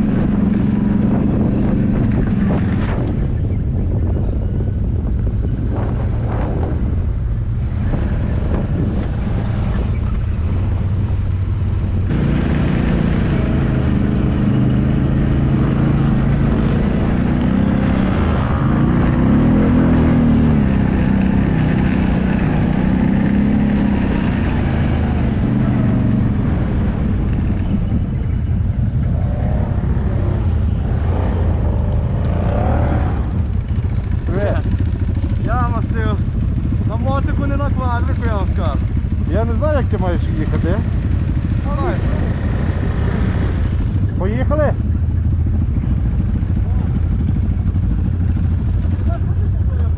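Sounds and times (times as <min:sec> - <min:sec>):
off-road vehicle engine revving: 0:12.0 - 0:44.7.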